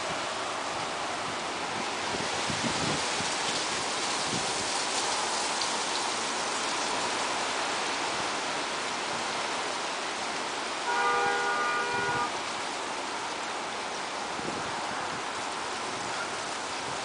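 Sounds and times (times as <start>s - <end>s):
steady rain: 0.0s - 17.0s
car horn chord: 10.8s - 12.3s.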